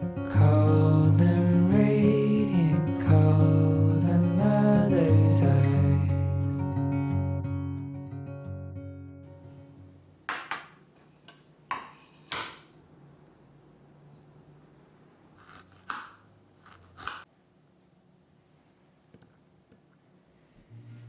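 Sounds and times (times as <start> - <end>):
background music: 0.0 - 9.3
kitchenware scraping and clattering: 10.3 - 12.7.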